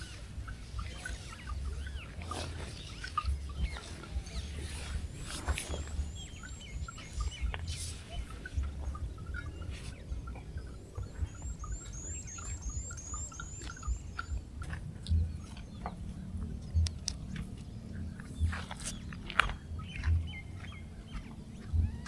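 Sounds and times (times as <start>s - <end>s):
lower bird chirps: 0.0s - 22.0s
small birds chirping: 0.0s - 22.0s.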